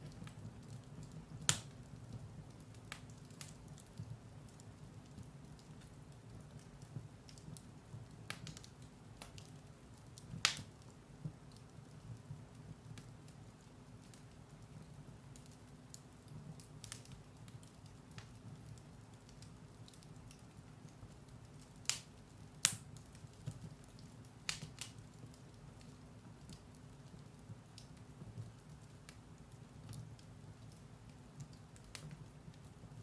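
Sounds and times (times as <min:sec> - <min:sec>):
firewood burning in fireplace: 0:00.0 - 0:33.0
sharp fire pops: 0:01.4 - 0:01.8, 0:21.8 - 0:23.7.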